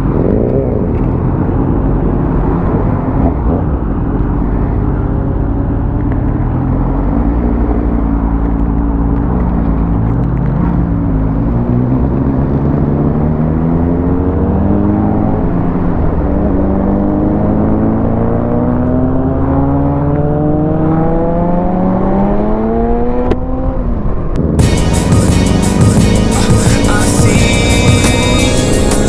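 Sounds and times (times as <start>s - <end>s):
motorcycle engine accelerating: 0.0s - 29.0s
wind and road noise: 0.0s - 29.0s
music: 24.6s - 29.0s.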